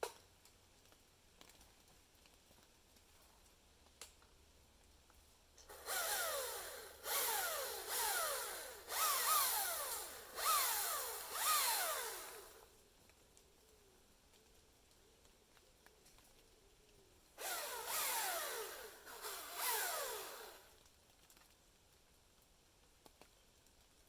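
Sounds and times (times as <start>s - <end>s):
chainsaw revving: 5.7s - 12.6s, 17.4s - 20.7s.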